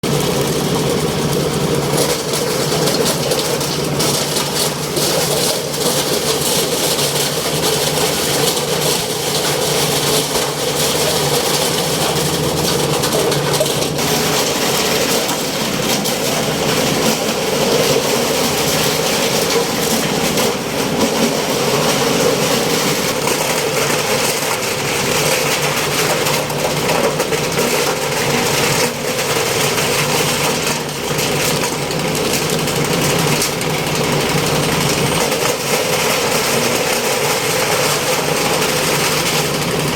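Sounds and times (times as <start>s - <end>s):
steady machine hum: 0.0s - 25.2s
machine running loudly: 0.0s - 39.9s.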